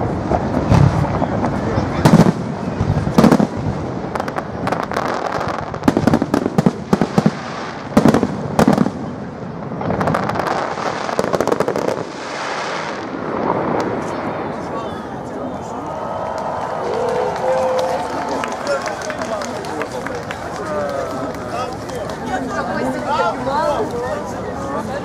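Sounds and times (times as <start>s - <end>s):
firework crackling and hiss: 0.0s - 15.5s.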